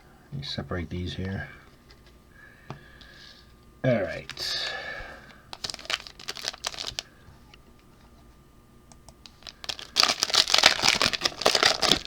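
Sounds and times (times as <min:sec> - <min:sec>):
foil card pack crinkling and tearing: 0:04.0 - 0:07.2, 0:09.2 - 0:12.0.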